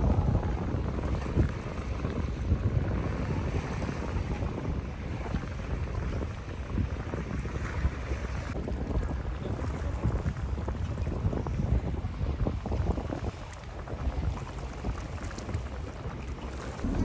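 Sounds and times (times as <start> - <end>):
boat engine rumble: 0.0 - 10.6, 13.3 - 17.0
wind buffeting microphone: 0.0 - 17.0
low thumps: 16.8 - 17.0.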